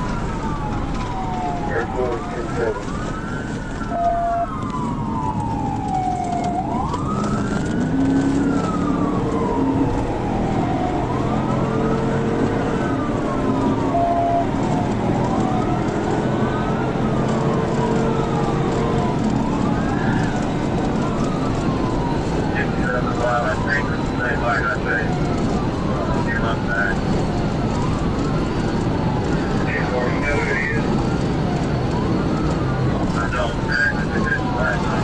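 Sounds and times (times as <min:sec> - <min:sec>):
engine and road noise: 0:00.0 - 0:35.0
police siren wailing: 0:00.0 - 0:35.0.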